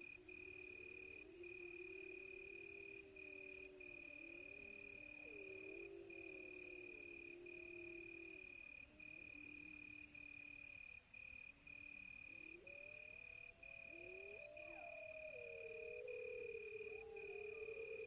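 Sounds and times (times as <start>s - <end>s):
crickets chirping: 0.0s - 18.0s
wolves howling far off: 2.9s - 8.4s, 12.4s - 18.0s.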